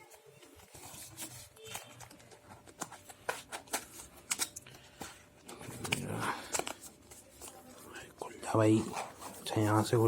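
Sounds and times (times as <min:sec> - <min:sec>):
cardboard packaging clicks and scratches: 0:00.0 - 0:07.9.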